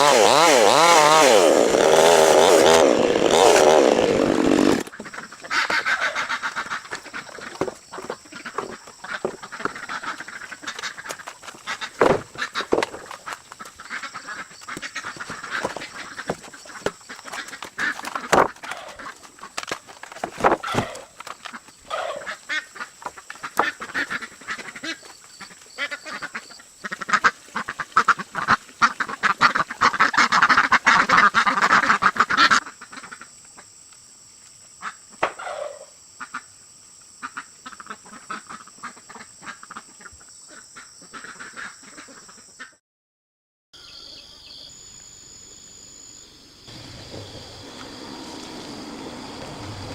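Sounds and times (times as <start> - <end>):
poultry flock calling: 5.0 - 7.6, 8.3 - 16.8, 21.9 - 33.2, 34.8 - 36.4, 41.1 - 42.7
high insect buzz: 43.8 - 49.9.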